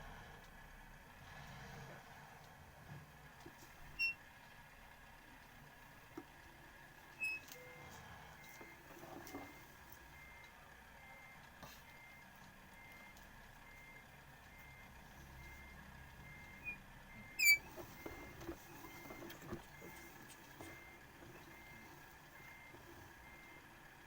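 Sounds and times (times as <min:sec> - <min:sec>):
vehicle reversing beeper: 0:07.1 - 0:24.0.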